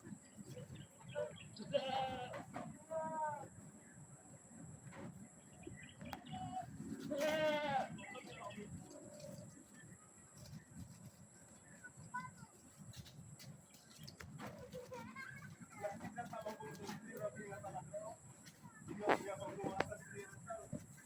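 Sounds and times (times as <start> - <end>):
goats bleating: 1.6 - 2.5, 6.4 - 8.1.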